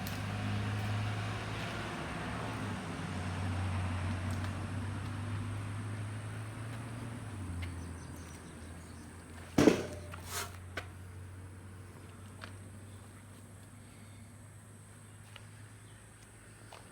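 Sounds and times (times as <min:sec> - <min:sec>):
sharp knock: 0:09.6 - 0:10.2.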